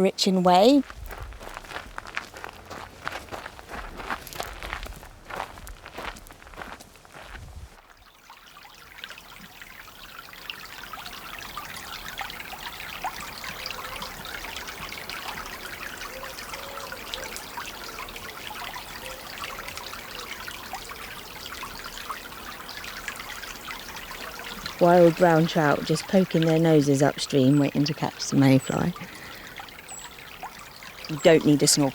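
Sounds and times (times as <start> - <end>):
stream water babbling: 0.0 - 31.9.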